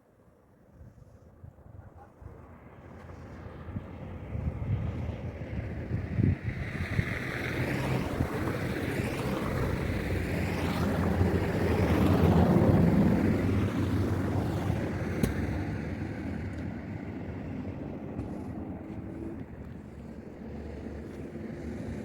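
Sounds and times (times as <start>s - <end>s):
wind noise on microphone: 3.6s - 16.8s.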